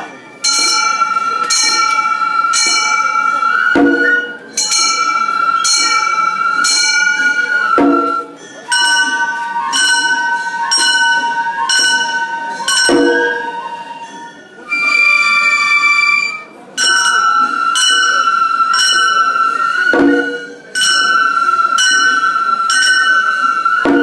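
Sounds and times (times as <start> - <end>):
brass gongs ringing: 0.0 - 24.0
flute melody: 0.0 - 24.0
deep drum strokes: 3.7 - 5.0, 7.8 - 8.4, 19.9 - 21.0.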